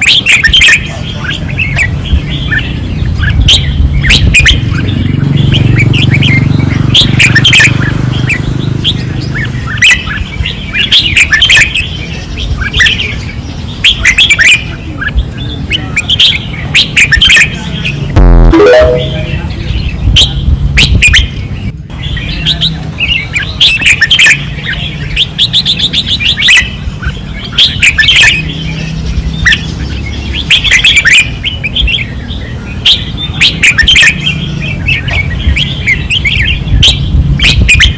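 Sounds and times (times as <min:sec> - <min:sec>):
bulbuls singing: 0:00.0 - 0:37.9
low steady rumble: 0:18.2 - 0:19.6.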